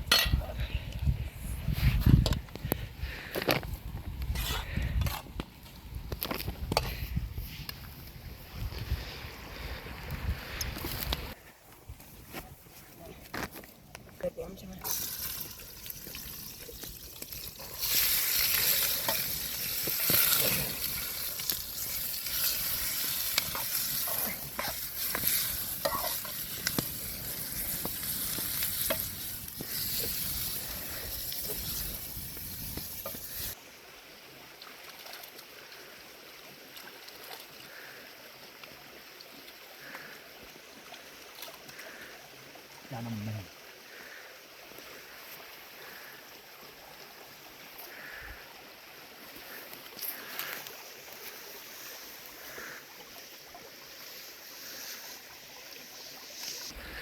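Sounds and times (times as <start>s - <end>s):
food sizzling in a pan: 14.8s - 33.6s
steady hiss: 14.8s - 33.8s, 47.3s - 57.0s
utensil scraping a pan: 17.6s - 26.8s.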